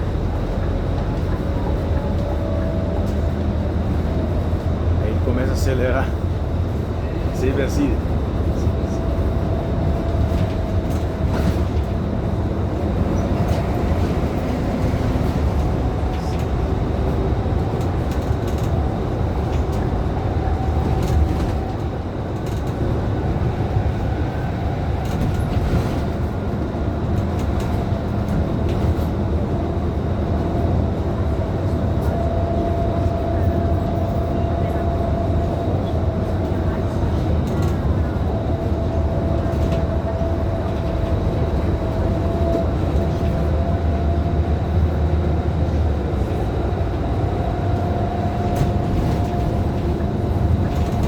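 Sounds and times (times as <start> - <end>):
diesel engine droning: 0.0 - 51.0
road noise: 0.0 - 51.0
body clicks and rattles: 13.0 - 23.0.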